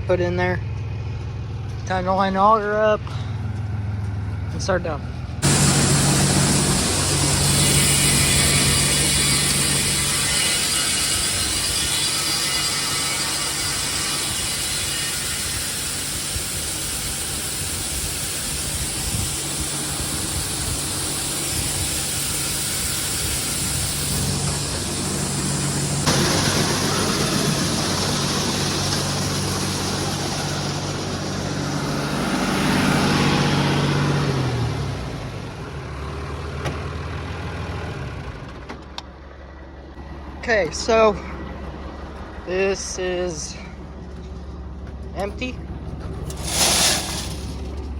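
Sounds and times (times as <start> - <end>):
engine running: 0.0 - 47.9
corn pouring hiss: 5.4 - 10.8, 12.8 - 30.3, 46.3 - 47.8.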